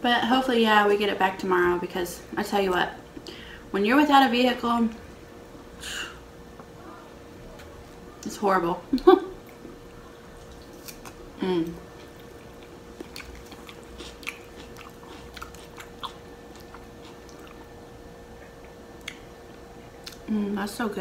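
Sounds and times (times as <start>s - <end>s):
faint steady hum: 0.0s - 21.0s
person humming mm: 11.4s - 11.8s
close-up chewing: 11.8s - 20.3s
sharp mouth clicks: 18.5s - 19.3s.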